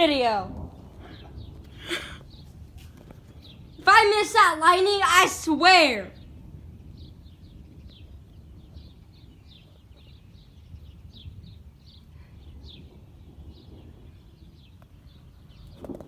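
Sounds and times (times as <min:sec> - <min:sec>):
low outdoor rumble: 0:00.0 - 0:09.3.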